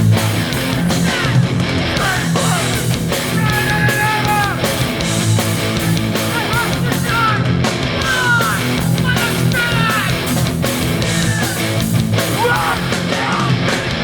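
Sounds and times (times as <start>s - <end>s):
distorted electric guitars: 0.0s - 14.0s
punk band playing live: 0.0s - 14.0s.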